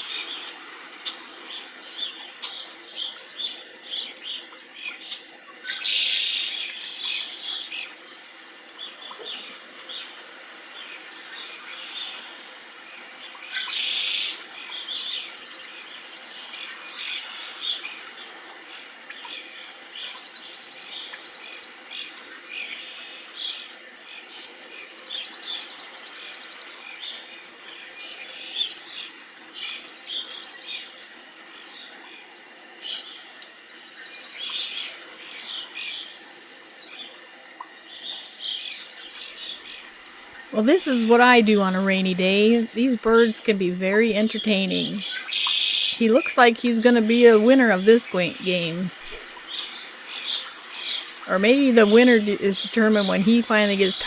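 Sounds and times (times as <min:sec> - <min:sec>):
songbirds chirping: 0:38.4 - 0:49.8, 0:50.8 - 0:54.0.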